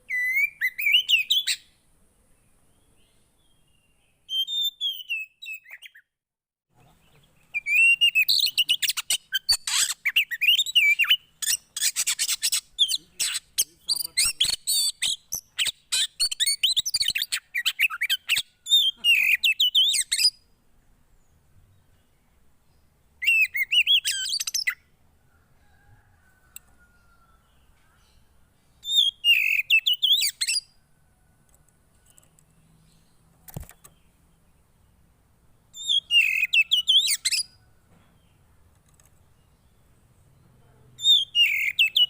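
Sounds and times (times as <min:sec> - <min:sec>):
songbird twittering: 0:00.0 - 0:01.8, 0:02.4 - 0:06.1, 0:06.8 - 0:20.4, 0:22.7 - 0:24.9, 0:25.7 - 0:30.8, 0:35.7 - 0:37.6, 0:39.2 - 0:42.0.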